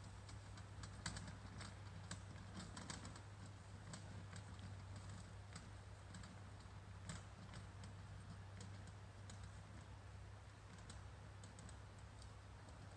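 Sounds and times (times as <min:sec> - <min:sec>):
faint irregular light clicks: 0:00.0 - 0:12.9
steady low hum: 0:00.0 - 0:12.9.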